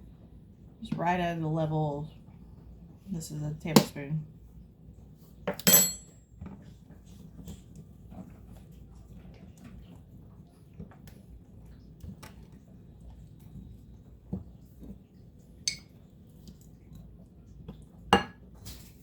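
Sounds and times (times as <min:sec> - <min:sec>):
spoon clinking on bowl: 0:05.5 - 0:06.1, 0:15.7 - 0:15.9
spoon stirring in a bowl: 0:15.7 - 0:16.0.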